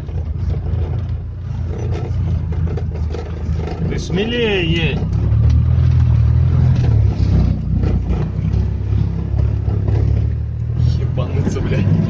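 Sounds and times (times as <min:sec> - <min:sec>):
buggy engine running under load: 0:00.0 - 0:12.0.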